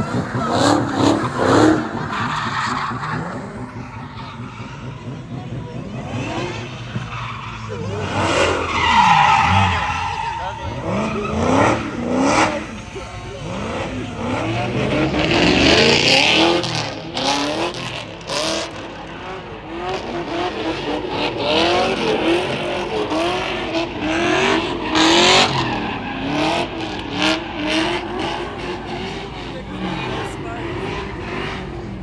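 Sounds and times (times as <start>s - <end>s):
car engine revving: 0.0s - 32.0s
tyre squeal: 6.6s - 16.7s.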